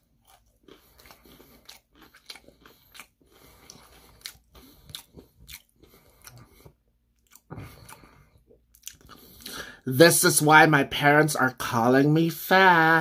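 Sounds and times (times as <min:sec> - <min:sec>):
crunchy chewing: 0:00.0 - 0:09.6.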